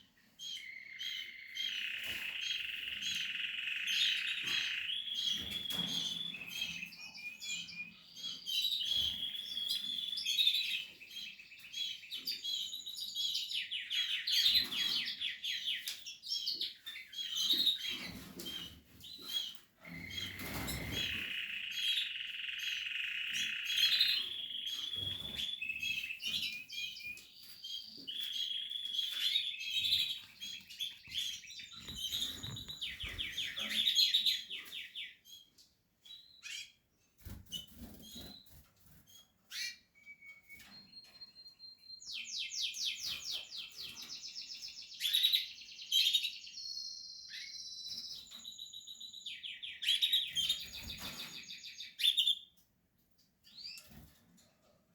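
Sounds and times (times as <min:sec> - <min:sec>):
canaries chirping and trilling: 0:00.1 - 0:54.9.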